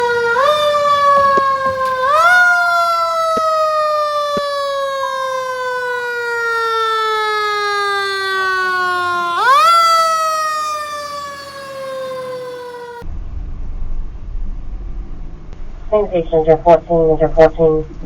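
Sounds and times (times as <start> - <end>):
fire engine siren wailing: 0.0 - 13.1.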